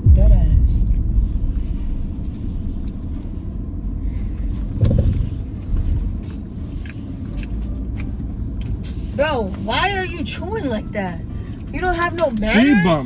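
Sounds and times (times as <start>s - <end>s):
brief low thump: 0.0s - 3.6s, 4.7s - 5.3s
car cabin rumble: 0.0s - 13.0s.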